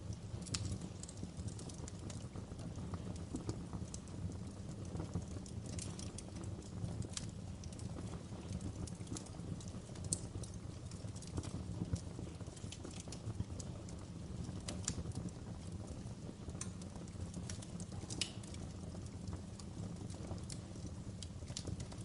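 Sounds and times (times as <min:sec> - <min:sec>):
fire rumbling: 0:00.0 - 0:22.0
logs crackling and popping: 0:00.0 - 0:22.0.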